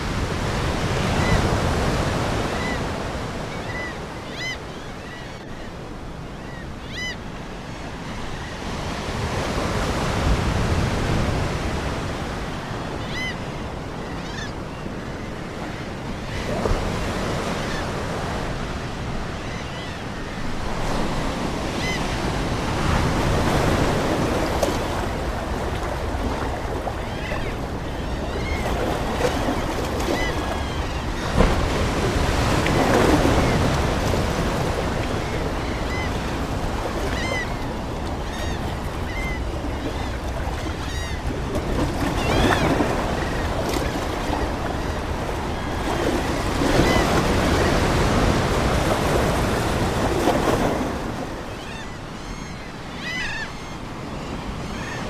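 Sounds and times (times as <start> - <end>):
ocean waves breaking on shore: 0.0 - 55.0
seagull calls: 23.3 - 49.2, 51.5 - 55.0.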